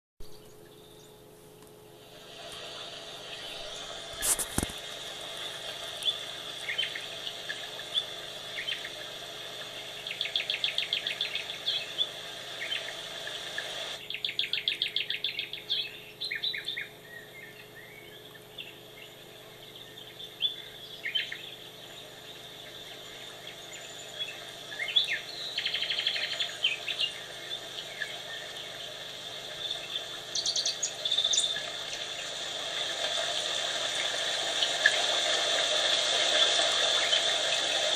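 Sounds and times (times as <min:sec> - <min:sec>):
steady background hiss: 0:00.2 - 0:37.9
songbirds chirping and singing: 0:05.3 - 0:13.0, 0:14.0 - 0:33.2.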